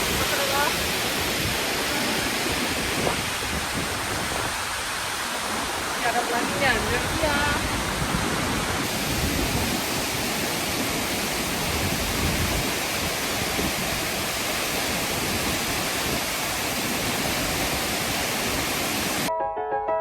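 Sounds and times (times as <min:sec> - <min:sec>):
waterfall rushing: 0:00.0 - 0:19.3
piano music: 0:19.3 - 0:20.0.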